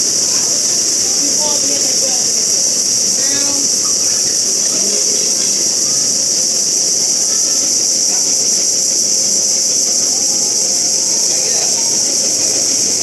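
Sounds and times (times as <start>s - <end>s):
faint distant voices: 0.0s - 13.0s
high-pitched insect chorus: 0.0s - 13.0s.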